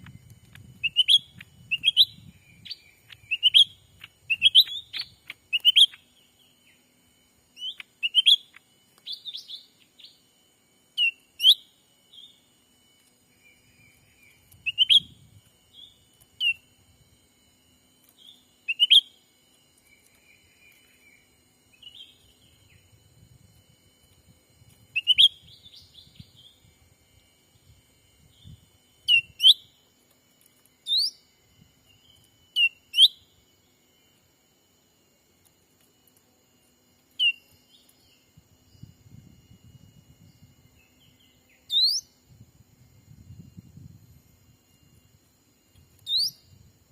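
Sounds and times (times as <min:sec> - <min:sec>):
bird whistled chirps: 0:00.0 - 0:06.9, 0:07.5 - 0:10.2, 0:10.9 - 0:12.5, 0:13.3 - 0:16.7, 0:18.2 - 0:19.2, 0:19.8 - 0:23.0, 0:24.9 - 0:26.6, 0:28.2 - 0:29.8, 0:30.8 - 0:31.2, 0:31.9 - 0:33.4, 0:37.1 - 0:38.9, 0:40.3 - 0:42.2, 0:46.0 - 0:46.5
faint steady high tone: 0:00.0 - 0:46.9.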